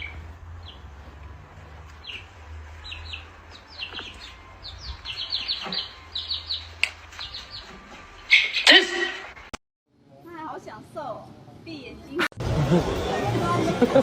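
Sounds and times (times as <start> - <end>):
small bird chirping: 2.0 - 7.7.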